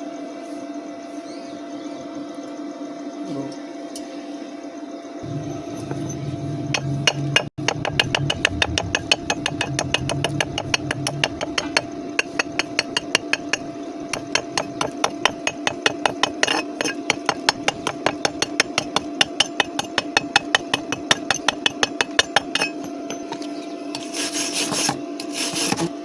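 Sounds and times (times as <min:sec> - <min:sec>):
steady hum: 0:00.0 - 0:26.0
hammer tapping on steel: 0:06.7 - 0:23.2.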